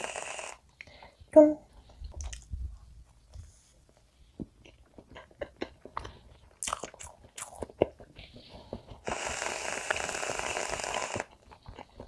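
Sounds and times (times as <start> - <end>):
close chewing with mouth clicks: 1.9 - 2.5, 4.5 - 12.0.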